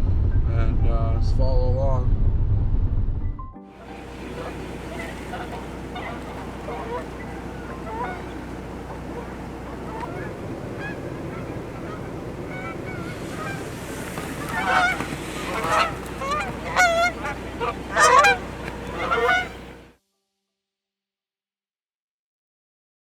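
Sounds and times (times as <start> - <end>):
geese honking: 3.8 - 19.9.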